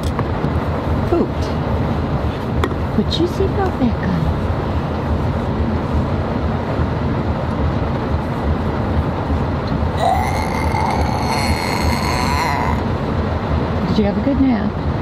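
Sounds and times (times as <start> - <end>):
car cabin road and engine rumble: 0.0 - 10.0
high steady whine: 0.0 - 15.0.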